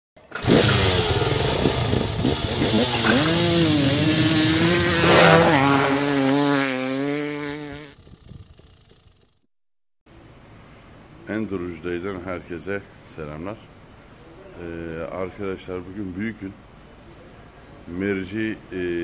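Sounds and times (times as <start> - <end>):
motorcycle engine revving: 0.2 - 9.4.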